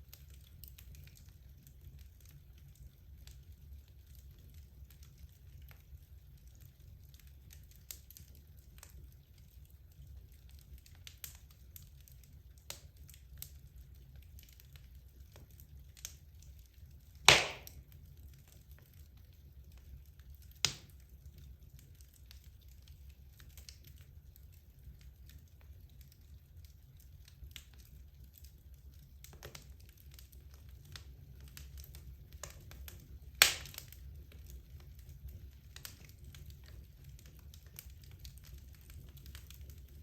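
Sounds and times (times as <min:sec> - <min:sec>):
fire crackling: 0:00.0 - 0:40.0
low rumble of fire: 0:00.0 - 0:40.0
loud fire pop: 0:17.3 - 0:17.8, 0:33.4 - 0:33.8.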